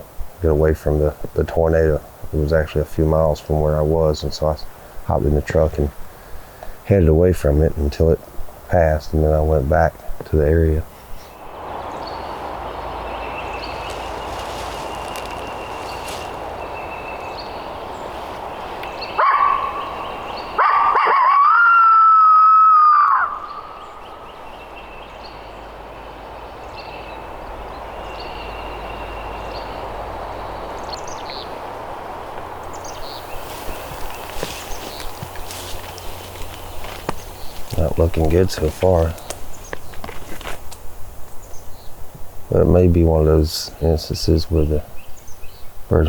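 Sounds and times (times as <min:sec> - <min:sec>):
dawn birdsong: 0:10.2 - 0:46.0
coyote howler call yip and howl: 0:19.2 - 0:23.6.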